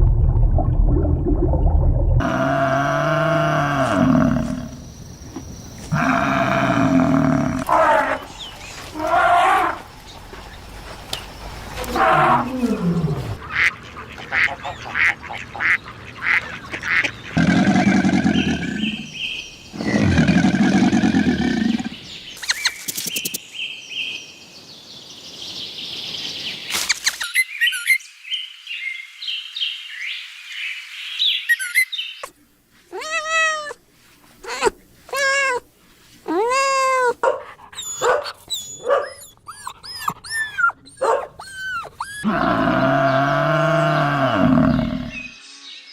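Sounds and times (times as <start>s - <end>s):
loud low animal calls: 2.2s - 4.9s, 5.8s - 9.9s, 11.7s - 13.7s, 17.4s - 19.2s, 19.8s - 21.9s, 38.6s - 45.3s.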